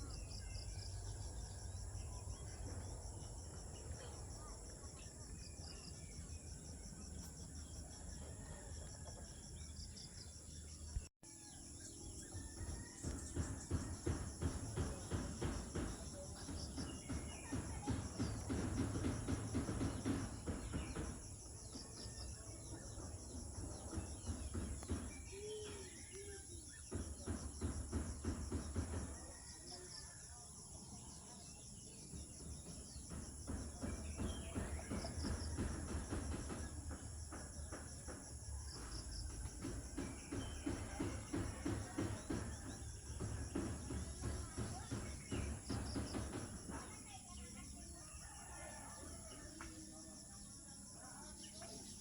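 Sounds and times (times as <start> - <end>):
crickets and insects shrilling: 11.7 - 52.0.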